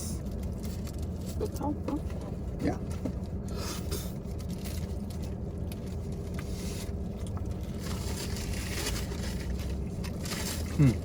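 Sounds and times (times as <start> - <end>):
low background rumble: 0.0 - 11.0
paper crackling rustles: 7.6 - 10.9.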